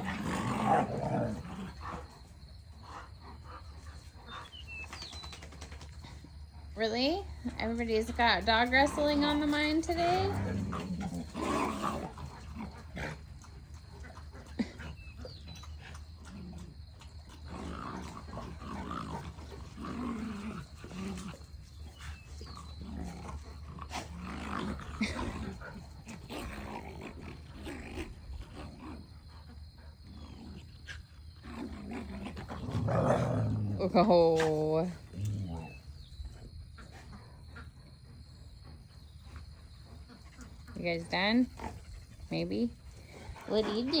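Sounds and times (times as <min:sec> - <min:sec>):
dogs growling and grunting: 0:00.0 - 0:44.0.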